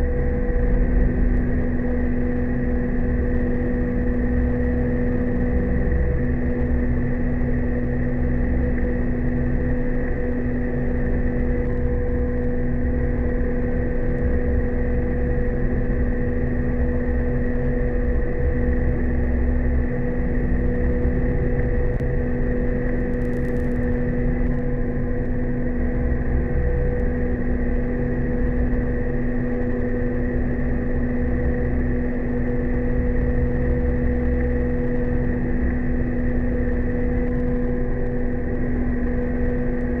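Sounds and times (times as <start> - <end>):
low rumble: 0.0 - 3.4.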